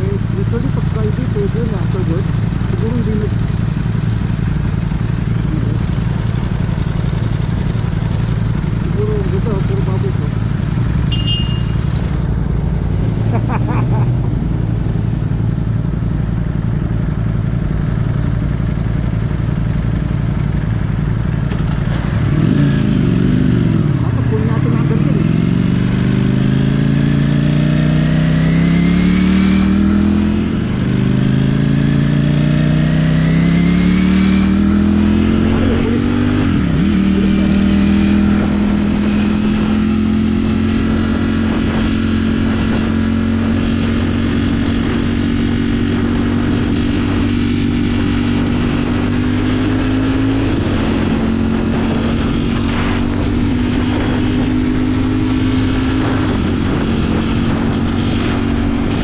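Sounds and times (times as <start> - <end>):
motorcycle engine accelerating: 0.0 - 59.0
wind on microphone: 34.6 - 59.0.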